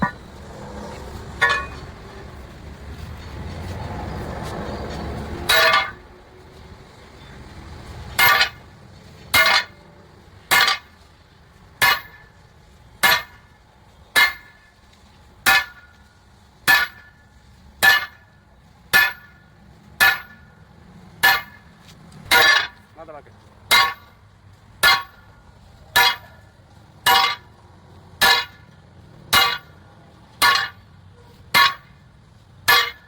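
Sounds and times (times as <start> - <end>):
hammer striking steel: 0.0 - 0.3, 1.4 - 2.0, 5.5 - 6.1, 8.2 - 8.6, 9.3 - 9.8, 10.5 - 10.9, 11.8 - 12.3, 13.0 - 13.5, 14.2 - 14.6, 15.4 - 15.9, 16.7 - 17.2, 17.8 - 18.3, 18.9 - 19.4, 20.0 - 20.5, 21.2 - 21.7, 22.3 - 22.9, 23.7 - 24.2, 24.8 - 25.3, 26.0 - 26.4, 27.0 - 27.5, 28.2 - 28.7, 29.3 - 29.8, 30.4 - 30.8, 31.5 - 32.0, 32.7 - 33.0
low rumble: 0.0 - 7.9.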